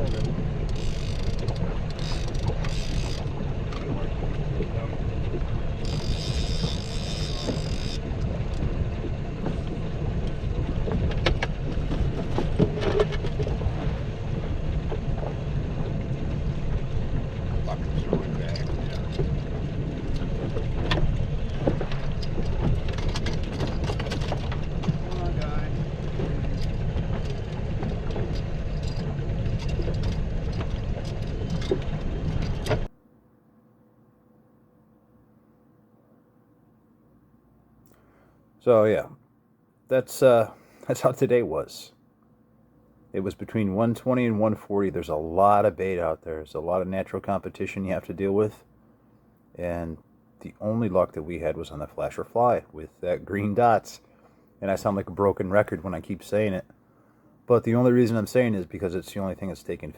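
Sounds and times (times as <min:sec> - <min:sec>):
boat motor rumbling: 0:00.0 - 0:33.0
faint hum: 0:00.0 - 0:59.9.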